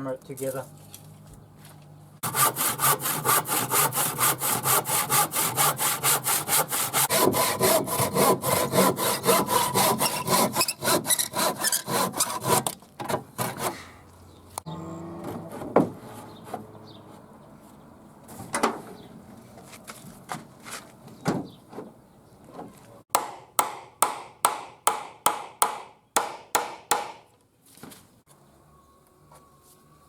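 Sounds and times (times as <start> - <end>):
hammer driving nails into wood: 23.1 - 27.3.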